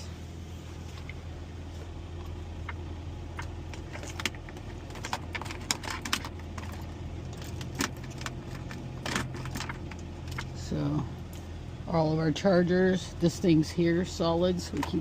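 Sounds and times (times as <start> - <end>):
idling truck hum: 0.0 - 15.0
small objects clicking and rattling: 3.4 - 10.5.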